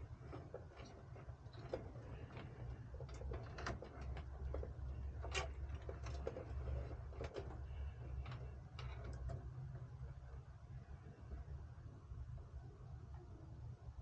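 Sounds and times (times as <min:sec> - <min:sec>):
steady low hum: 0:00.0 - 0:14.0
light clicks and taps: 0:00.2 - 0:10.4.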